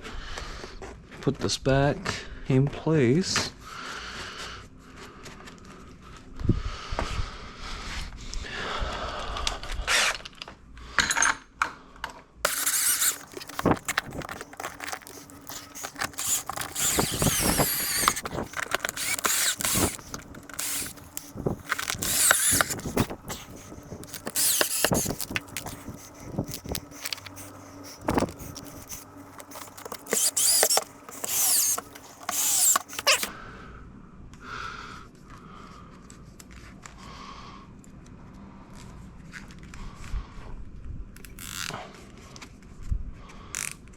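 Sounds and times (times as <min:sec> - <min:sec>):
clicks knocks and scrapes of handwork: 0:12.5 - 0:33.3
squeaky rubbing: 0:12.5 - 0:33.3.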